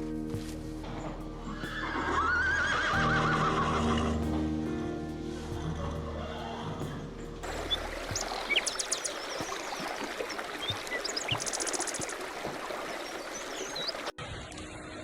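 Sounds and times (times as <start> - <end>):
rushing noise: 0.0 - 14.0
small birds chirping: 5.3 - 14.1.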